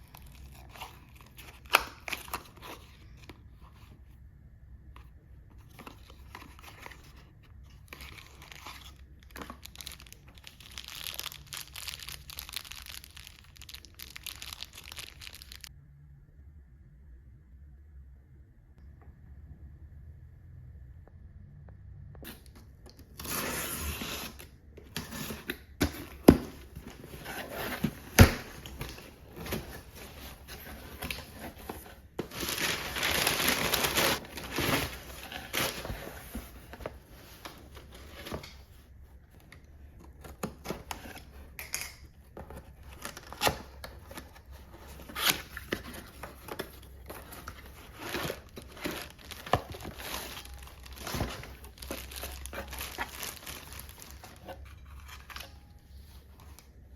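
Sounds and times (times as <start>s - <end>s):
crinkling and rustling: 4.9s - 15.7s, 23.9s - 56.9s.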